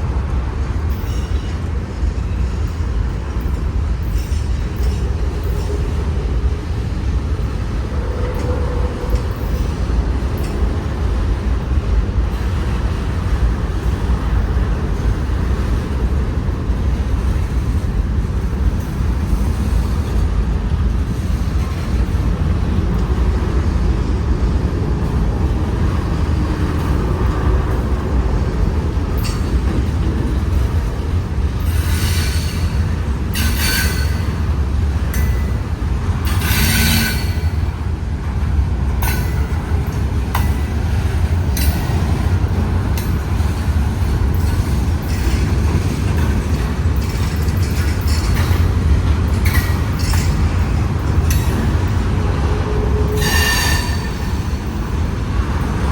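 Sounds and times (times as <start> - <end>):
freight train rumbling on rails: 0.0 - 55.9
wheel squeals: 53.0 - 54.5.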